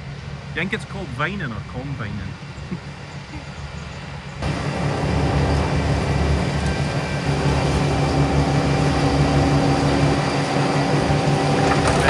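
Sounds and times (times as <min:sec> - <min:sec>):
harvester engine running: 0:03.8 - 0:12.0.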